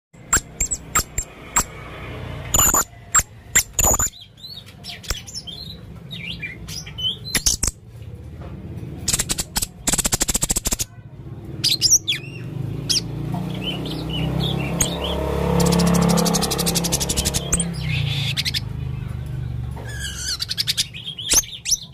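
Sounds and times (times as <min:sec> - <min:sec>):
parrot chirping: 0:00.2 - 0:01.8, 0:02.4 - 0:07.8, 0:09.1 - 0:10.9, 0:11.6 - 0:18.8, 0:19.8 - 0:21.9
parrot stuttering trills: 0:00.2 - 0:01.8, 0:02.5 - 0:04.2, 0:14.5 - 0:18.7.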